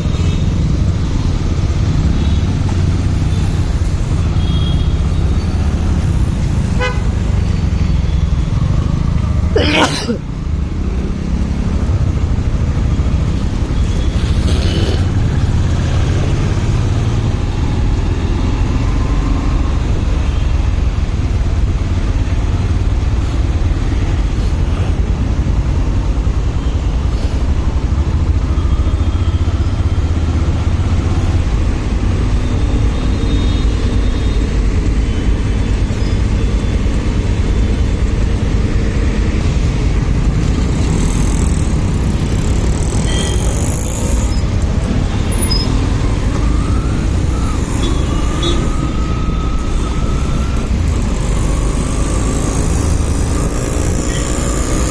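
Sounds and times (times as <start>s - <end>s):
road noise: 0.0s - 54.9s
motorcycle engine rumble: 29.4s - 54.9s.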